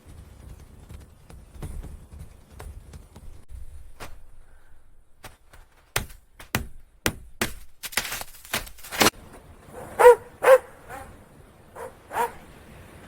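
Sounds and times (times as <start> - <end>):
dog barking in short yelps: 9.7 - 11.2, 11.8 - 12.4.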